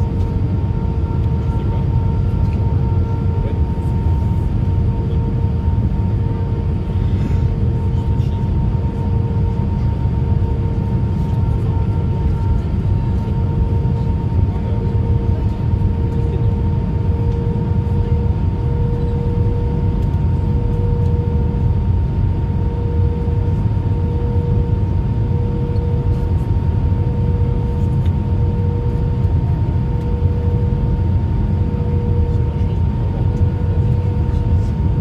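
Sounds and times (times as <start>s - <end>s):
airplane engines rumbling: 0.0s - 35.0s
mid-pitched hum: 0.0s - 35.0s.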